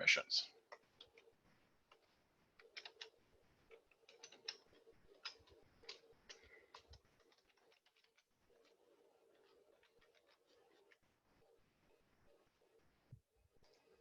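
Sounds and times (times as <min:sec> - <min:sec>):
computer keyboard clicking: 0:01.9 - 0:08.2.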